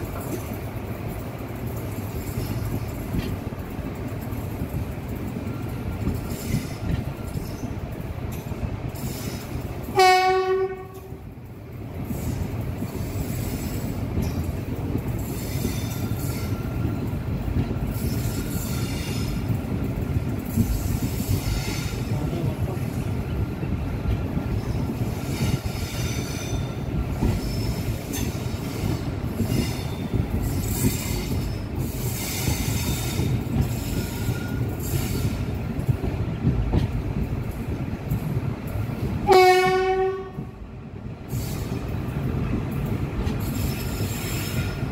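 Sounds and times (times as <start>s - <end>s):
train wheels rumbling on rails: 0.0s - 44.9s
train horn: 9.9s - 11.2s, 39.2s - 40.6s.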